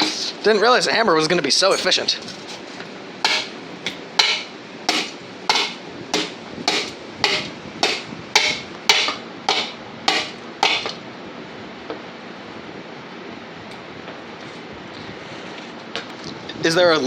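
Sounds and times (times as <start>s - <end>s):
hammer striking metal pulley: 3.2s - 11.0s.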